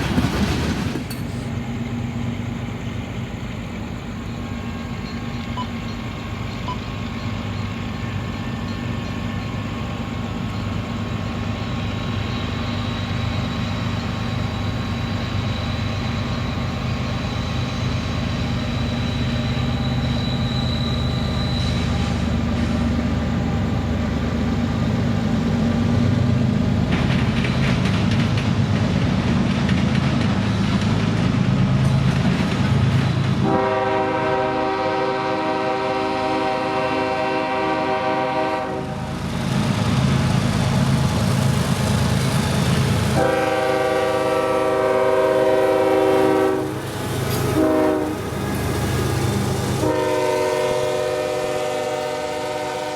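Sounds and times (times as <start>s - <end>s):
diesel locomotive rumble: 0.0s - 52.9s
train rattling clatter: 0.0s - 52.9s
locomotive air horn: 33.4s - 39.0s, 43.2s - 46.8s, 47.5s - 48.4s, 49.8s - 52.9s.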